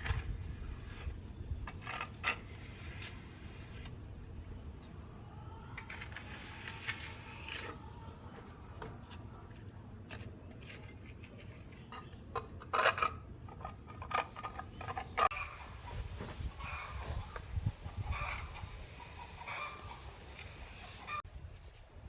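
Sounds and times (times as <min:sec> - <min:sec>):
hard objects scraping and clicking: 0:00.0 - 0:03.9, 0:05.8 - 0:17.5.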